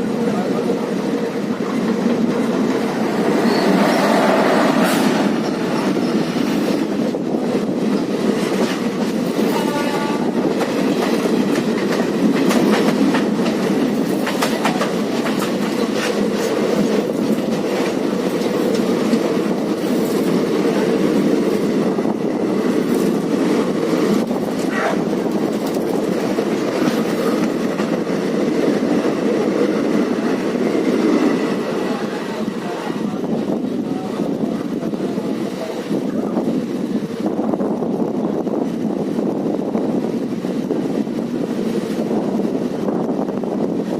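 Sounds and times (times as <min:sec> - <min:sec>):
train rumbling on track: 0:00.0 - 0:43.9
wheels clacking over rail joints: 0:01.0 - 0:21.8.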